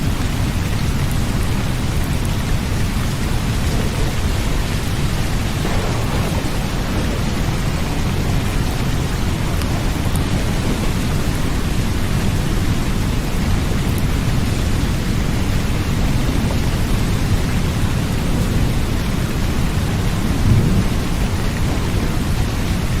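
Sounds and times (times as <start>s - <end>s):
steady rain: 0.0s - 23.0s
deep low rumble: 1.5s - 13.0s.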